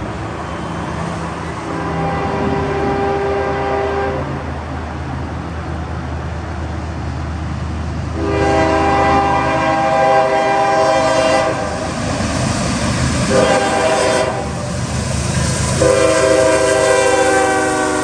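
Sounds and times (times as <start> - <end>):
diesel locomotives running: 0.0 - 18.0
train horn chord: 1.6 - 4.4, 8.2 - 11.9, 13.3 - 14.6, 15.8 - 18.0.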